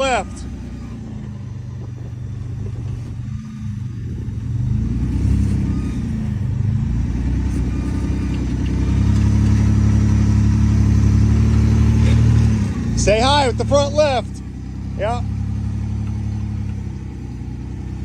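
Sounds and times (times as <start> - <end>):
buggy engine revving: 0.0 - 18.0.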